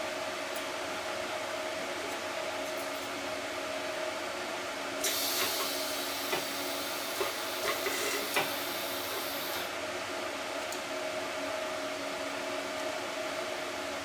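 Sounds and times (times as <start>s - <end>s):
welding arc hissing and crackling: 5.0s - 9.7s.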